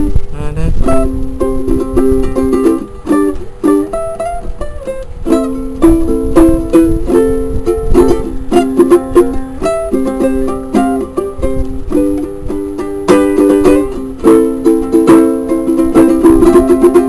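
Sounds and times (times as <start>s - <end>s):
ukulele strumming and picking: 0.0s - 17.0s.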